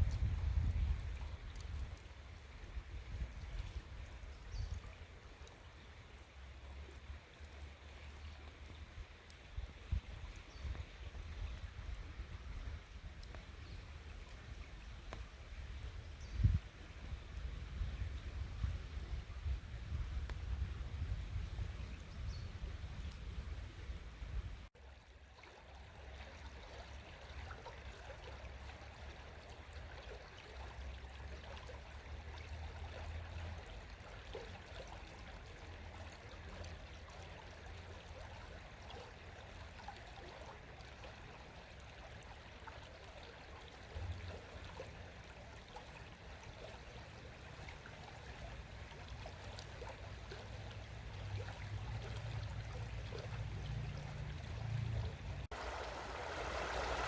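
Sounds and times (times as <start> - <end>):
river babbling: 24.8 - 57.0.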